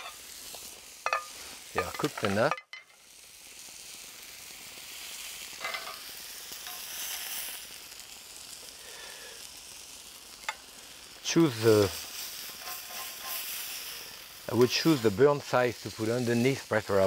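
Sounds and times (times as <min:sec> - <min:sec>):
burgers sizzling in a frying pan: 0:00.0 - 0:17.0.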